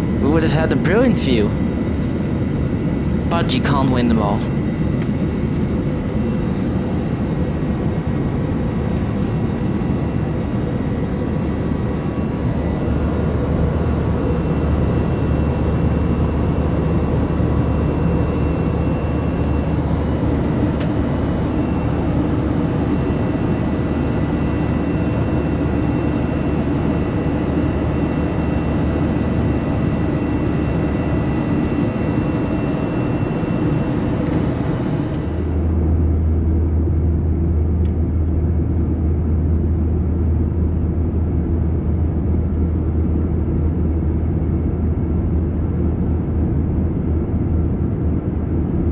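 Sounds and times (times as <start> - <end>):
engine and airflow rumble: 4.5 - 35.8.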